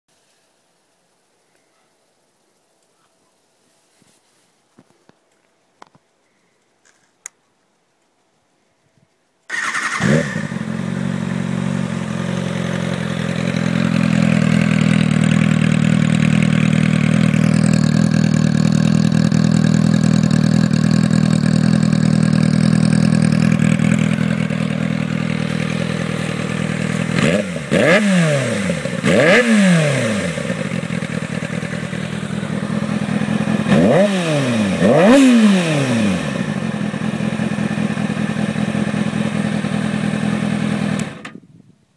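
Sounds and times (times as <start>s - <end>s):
quiet clicks: 4.8s - 9.3s
motorcycle engine idling and revving: 9.5s - 41.5s.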